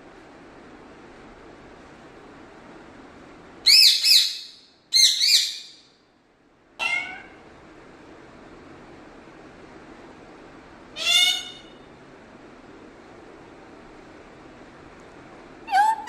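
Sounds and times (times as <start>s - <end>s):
parrot calling: 3.6s - 5.8s, 6.8s - 7.4s, 10.9s - 11.9s, 15.7s - 16.0s.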